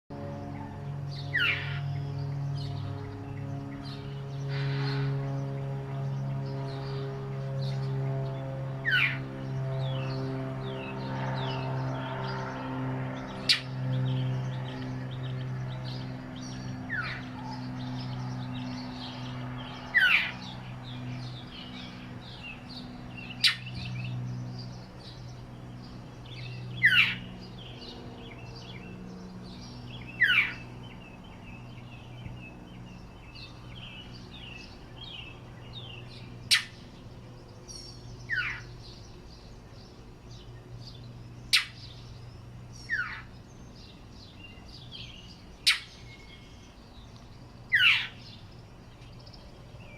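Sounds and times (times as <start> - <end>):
faint birds chirping: 0.1 - 49.9
steady low hum: 0.1 - 49.9
bird sharp calls: 0.6 - 5.3, 8.8 - 9.3, 13.2 - 24.2, 26.3 - 32.4, 33.3 - 36.9, 37.7 - 39.1, 40.9 - 42.2, 42.8 - 46.9, 47.7 - 48.4.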